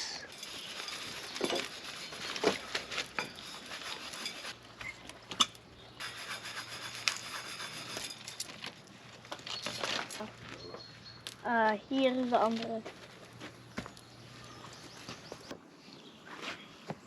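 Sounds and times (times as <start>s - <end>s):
utensils scraping dishes: 0.3s - 4.6s, 5.4s - 8.6s.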